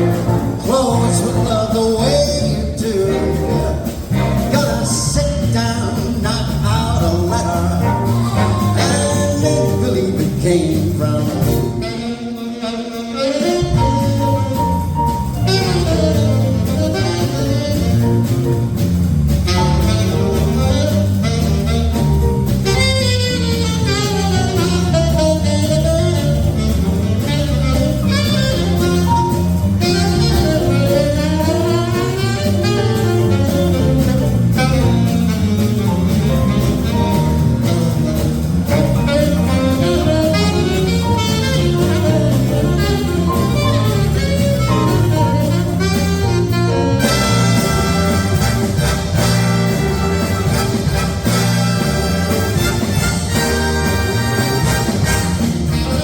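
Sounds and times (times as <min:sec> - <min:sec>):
bass and drums: 0:00.0 - 0:56.0
big band playing swing: 0:00.0 - 0:56.0
saxophones: 0:11.7 - 0:14.6.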